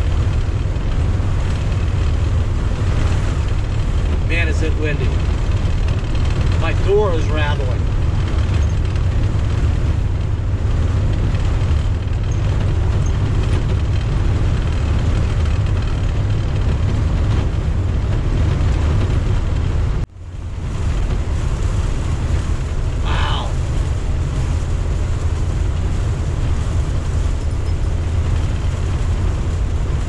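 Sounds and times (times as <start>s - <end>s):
wind on vehicle body: 0.0s - 4.3s, 5.1s - 6.6s, 7.7s - 30.0s
engine and road rumble: 0.0s - 30.0s.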